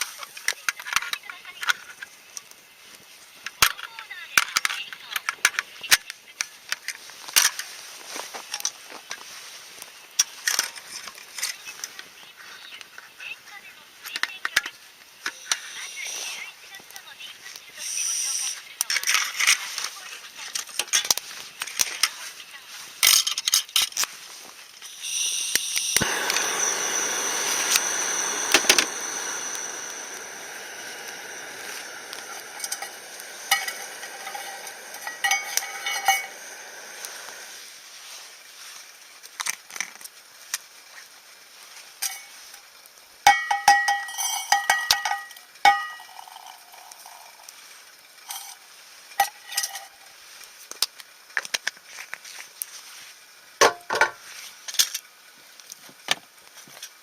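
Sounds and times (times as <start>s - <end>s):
food sizzling in a metal pan: 15.2s - 20.1s, 24.8s - 39.2s, 40.6s - 50.7s
cookware and utensils clinking: 23.0s - 24.1s, 26.3s - 37.5s, 42.0s - 42.5s, 43.3s - 47.6s, 48.2s - 50.1s.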